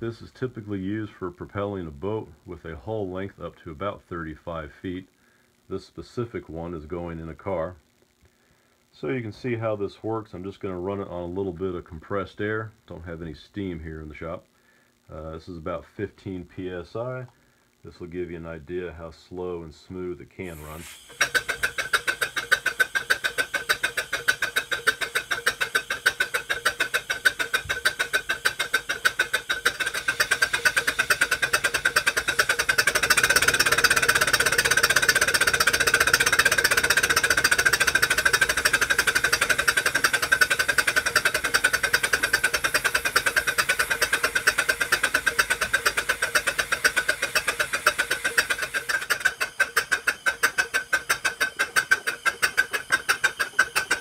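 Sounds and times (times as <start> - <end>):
steam engine beating: 20.5 - 54.0.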